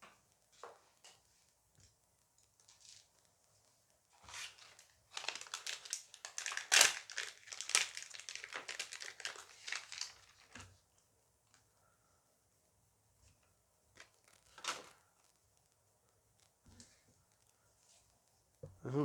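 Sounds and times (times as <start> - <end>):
foil wrapper crinkling: 4.2 - 10.6, 14.0 - 15.4.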